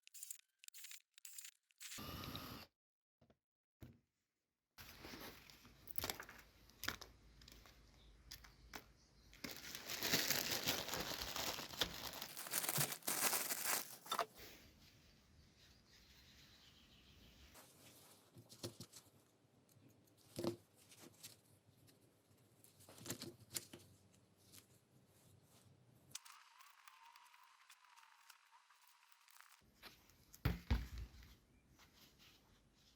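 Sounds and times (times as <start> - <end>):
small parts clicking and knocking: 0.0 - 2.0, 26.1 - 30.4.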